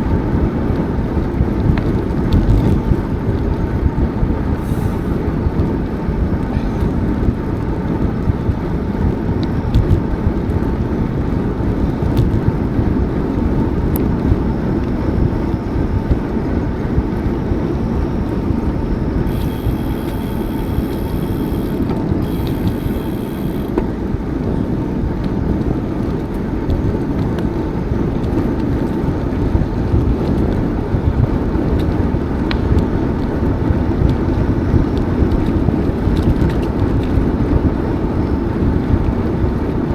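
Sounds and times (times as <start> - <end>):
wind rumbling on microphone: 0.0 - 39.9
faint high steady tone: 17.4 - 23.8.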